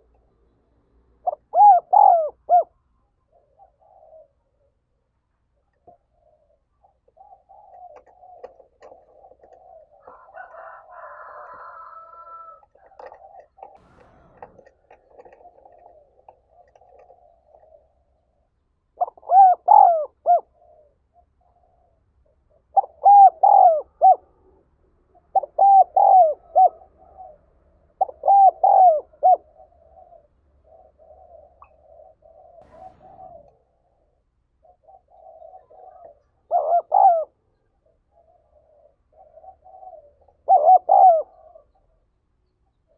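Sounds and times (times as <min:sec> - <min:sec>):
dove cooing: 0:01.2 - 0:05.0, 0:05.6 - 0:42.1
soft murmuring coos: 0:01.3 - 0:04.8, 0:05.8 - 0:18.2, 0:19.0 - 0:33.5, 0:34.6 - 0:42.0
rooster crowing: 0:10.0 - 0:12.7.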